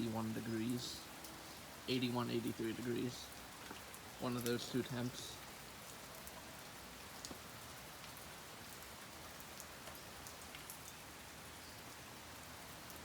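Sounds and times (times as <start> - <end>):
steady rain falling: 0.0 - 13.0
drops ticking on a surface: 7.2 - 8.2.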